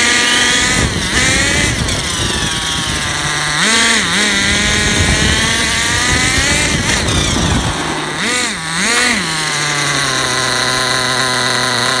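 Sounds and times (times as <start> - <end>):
small glow engine revving and idling: 0.0 - 12.0
steady high whine: 1.9 - 11.3.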